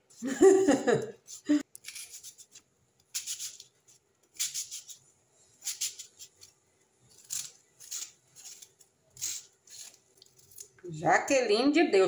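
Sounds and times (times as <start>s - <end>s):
food scraping and cutting: 1.7s - 5.0s, 5.6s - 10.8s.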